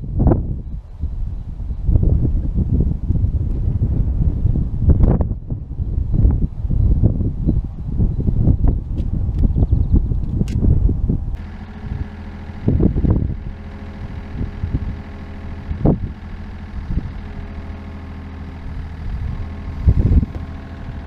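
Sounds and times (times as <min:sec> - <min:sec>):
diesel engine idling: 0:11.3 - 0:21.0.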